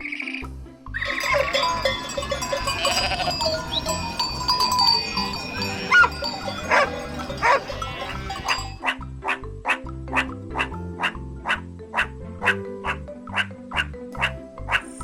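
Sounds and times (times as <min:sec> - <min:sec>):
background music with bass line: 0:00.0 - 0:15.0
farm animal bleating: 0:01.0 - 0:08.8.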